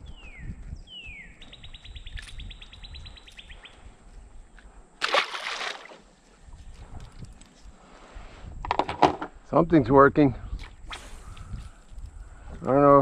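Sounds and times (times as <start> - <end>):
songbird whistling and trilling: 0.0 - 3.8.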